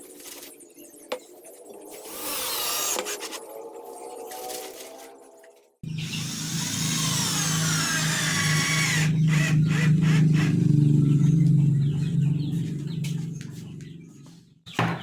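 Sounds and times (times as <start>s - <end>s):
electric power tool humming: 5.9s - 11.6s.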